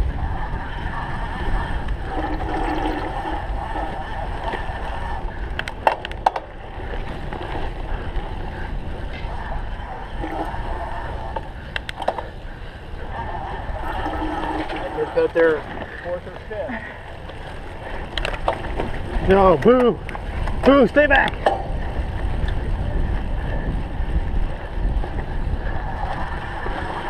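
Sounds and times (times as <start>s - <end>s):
bike tyres rumbling: 0.0s - 27.0s
wind: 0.0s - 27.0s
sharp bike clicks: 11.3s - 12.5s.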